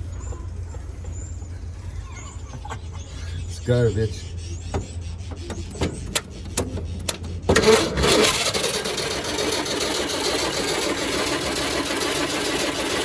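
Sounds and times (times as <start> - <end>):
truck engine cranking on starter: 4.7 - 13.0.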